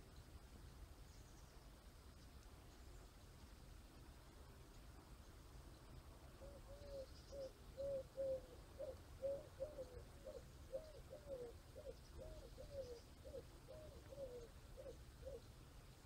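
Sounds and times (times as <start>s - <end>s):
bird hooting notes: 6.4s - 15.5s.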